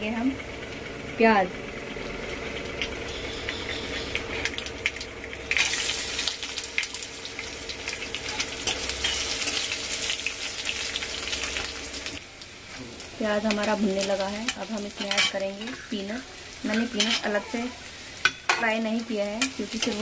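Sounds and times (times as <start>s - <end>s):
seeds crackling in hot oil: 0.0s - 20.0s
onions sizzling in oil: 0.2s - 20.0s
ladle stirring and scraping pan: 13.6s - 15.9s, 16.7s - 18.6s.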